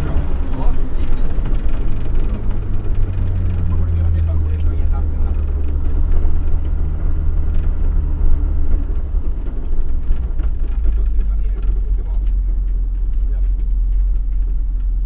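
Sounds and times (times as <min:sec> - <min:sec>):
car engine heard from inside cabin: 0:00.0 - 0:15.0.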